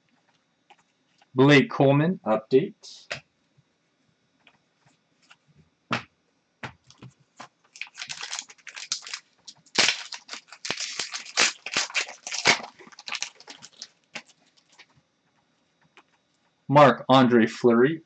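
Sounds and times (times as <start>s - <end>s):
cards and packaging rustling: 7.7s - 14.9s.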